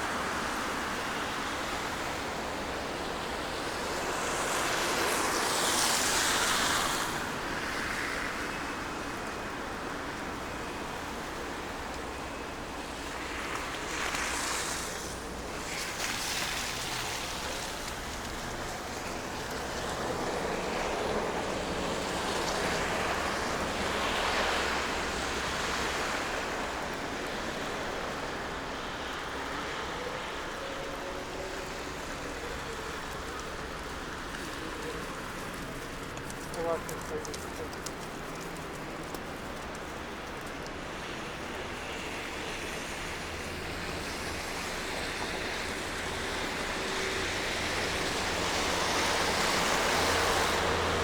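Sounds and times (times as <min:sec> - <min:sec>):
traffic hiss: 0:00.0 - 0:51.0
vehicle passing: 0:42.0 - 0:51.0.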